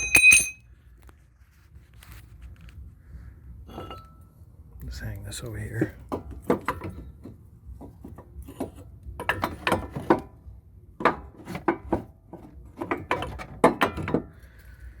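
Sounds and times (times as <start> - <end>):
metal parts clinking and knocking: 0.0 - 0.6.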